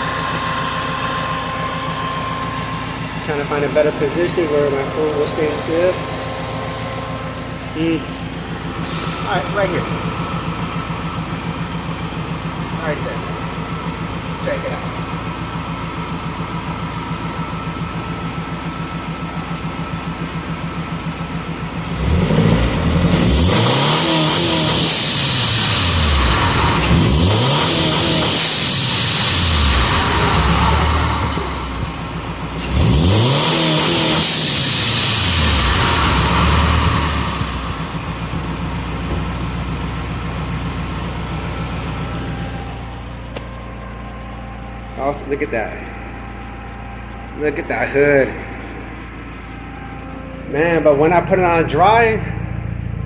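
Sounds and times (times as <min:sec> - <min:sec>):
car engine idling and revving: 0:00.0 - 0:53.0.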